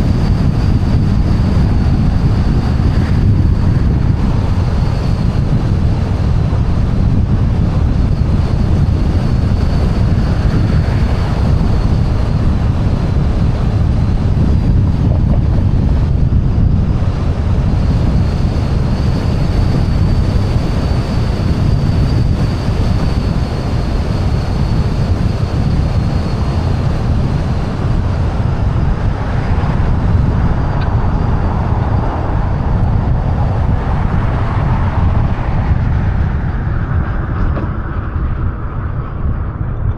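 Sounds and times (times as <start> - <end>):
wind rushing over microphone: 0.0 - 39.9
tyre and traffic noise: 27.9 - 39.9.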